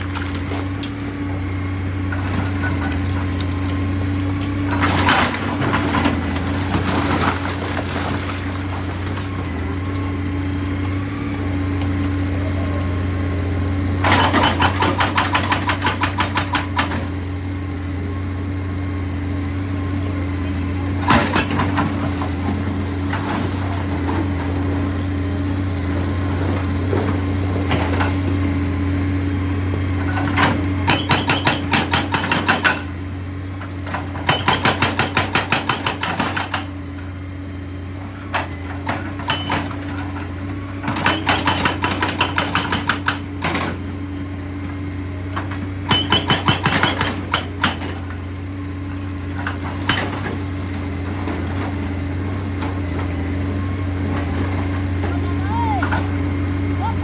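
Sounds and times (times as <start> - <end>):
diesel engine droning: 0.0 - 57.0
hydraulic breaker hammering rock: 14.0 - 17.2, 20.9 - 24.4, 30.0 - 33.0, 33.8 - 36.8, 38.3 - 44.0, 45.3 - 48.2, 49.3 - 51.7.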